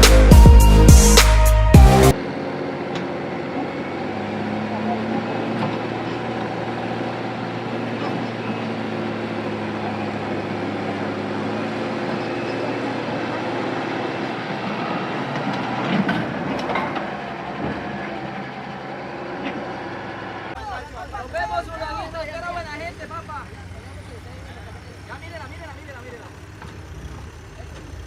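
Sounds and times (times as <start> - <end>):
heavy vehicle engine running: 0.0 - 28.0
knocks and clatters: 15.3 - 18.0.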